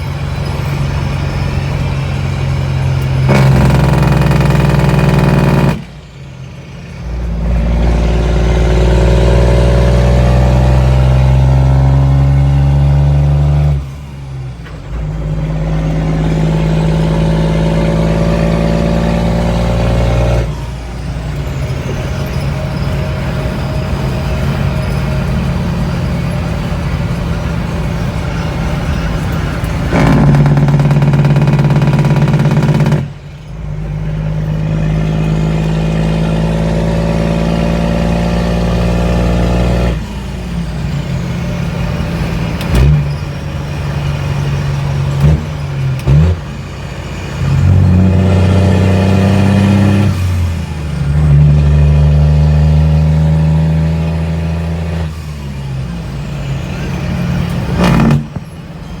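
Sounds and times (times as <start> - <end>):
diesel engine running under load: 0.0 - 59.0
sharp exhaust cracks: 2.7 - 6.2, 24.3 - 33.8, 56.8 - 58.7.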